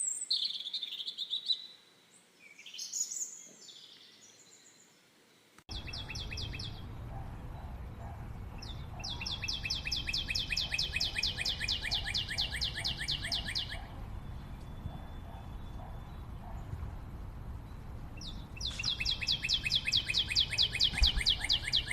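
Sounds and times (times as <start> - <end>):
low background noise: 0.0 - 21.9
bird singing fast trill: 5.7 - 16.7, 17.6 - 21.9.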